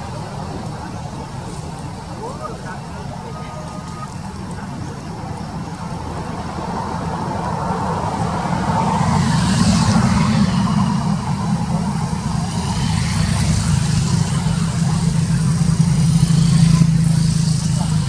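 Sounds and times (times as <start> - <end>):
hiss of passing vehicle: 0.0 - 18.0
vehicle engine running: 0.0 - 18.0.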